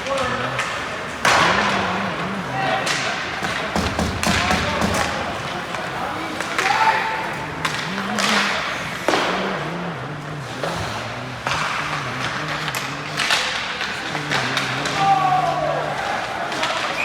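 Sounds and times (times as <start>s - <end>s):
steady background noise: 0.0s - 17.0s
echoing thumps and knocks: 3.7s - 5.3s.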